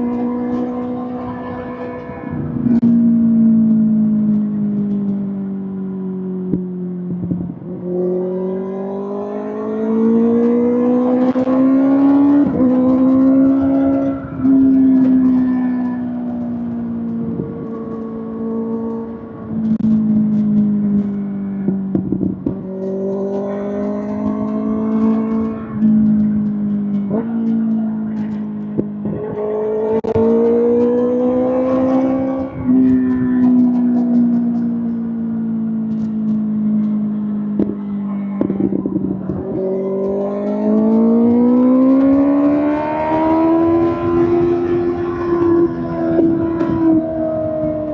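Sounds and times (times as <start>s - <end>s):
motorcycle engine running: 9.8s - 47.9s.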